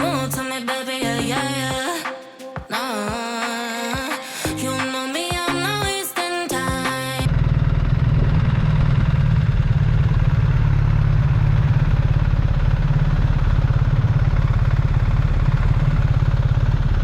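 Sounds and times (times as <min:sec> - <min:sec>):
motorcycle engine idling: 0:07.2 - 0:17.0.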